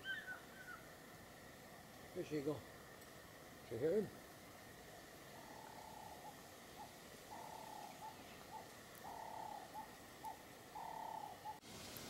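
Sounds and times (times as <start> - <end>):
faint bird calling: 0.0 - 1.1, 5.1 - 11.6.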